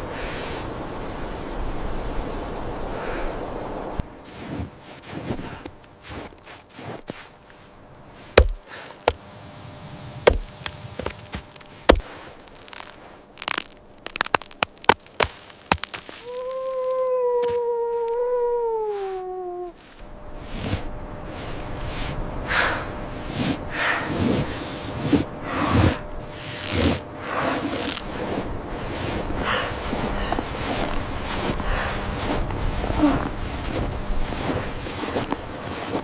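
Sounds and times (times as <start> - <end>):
rustling noise: 4.1 - 36.0
sharp chopping strikes: 8.4 - 9.2, 10.2 - 12.1.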